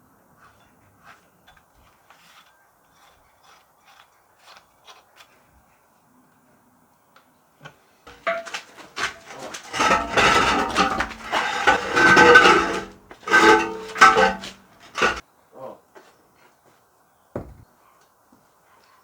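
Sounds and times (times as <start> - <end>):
scraping and rubbing on metal: 0.4 - 5.0, 8.1 - 15.2.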